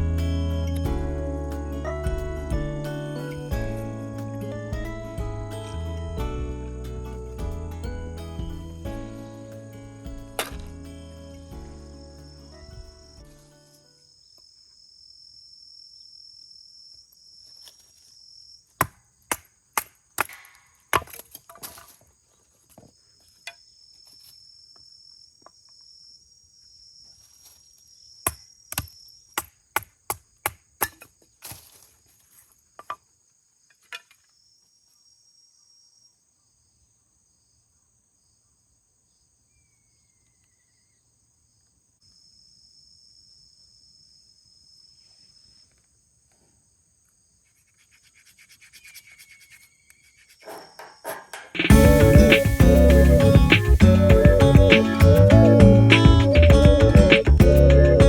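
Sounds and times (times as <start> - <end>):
firewood being chopped: 10.3 - 10.8, 18.8 - 22.0, 28.3 - 31.7
insects trilling: 21.9 - 55.0.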